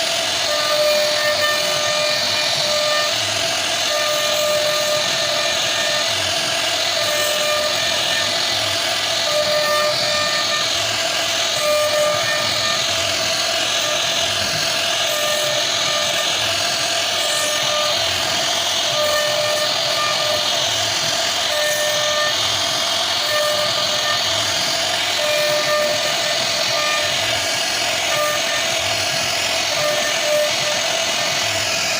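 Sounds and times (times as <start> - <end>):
wood router hissing and whining: 0.0 - 31.9.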